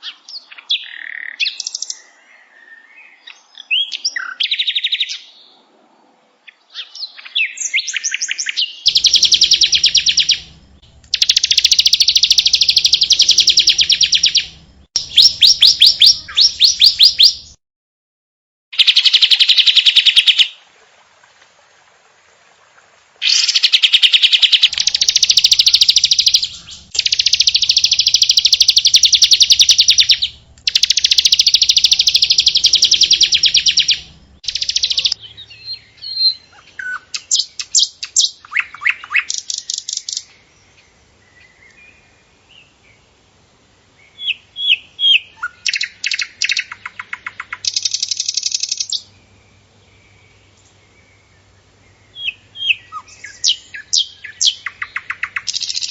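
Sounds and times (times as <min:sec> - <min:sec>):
songbird trilling: 0:00.0 - 0:05.3, 0:06.7 - 0:17.6, 0:23.2 - 0:40.8, 0:44.1 - 0:49.2, 0:51.9 - 0:55.9.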